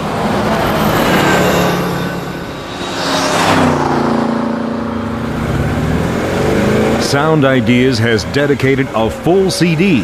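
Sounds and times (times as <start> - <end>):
car passing by: 0.0 - 7.4.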